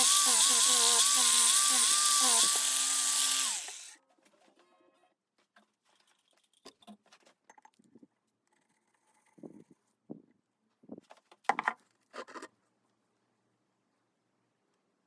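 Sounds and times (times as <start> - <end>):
small electric motor winding down: 0.0 - 4.0.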